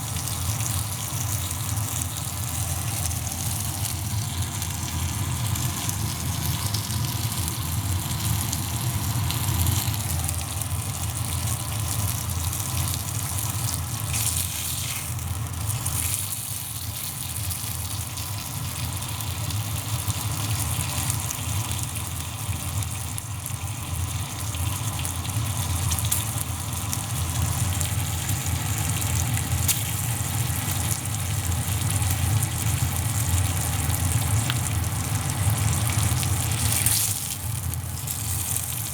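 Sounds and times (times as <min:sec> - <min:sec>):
meat sizzling over fire: 0:00.0 - 0:38.9.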